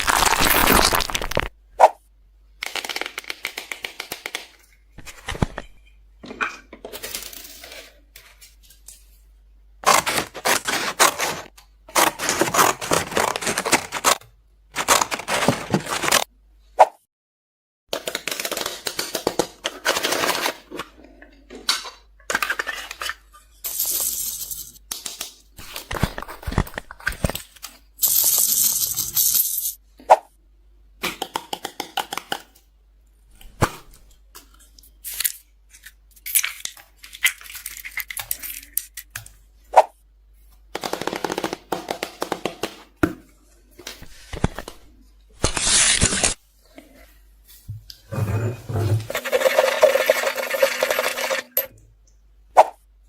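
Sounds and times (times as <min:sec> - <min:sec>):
slime crackling and crunching: 0:00.0 - 0:01.5.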